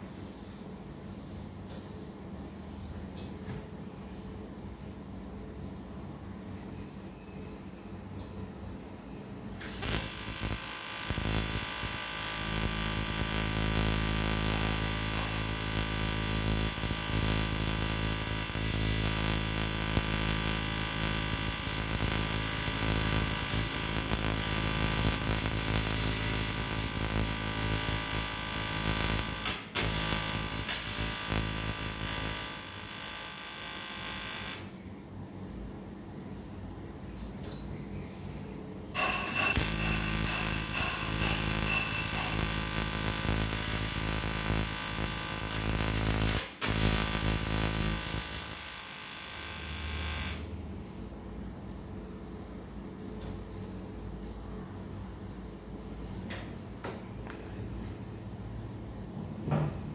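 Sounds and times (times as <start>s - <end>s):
welding arc buzzing: 9.6s - 34.8s, 39.0s - 50.6s.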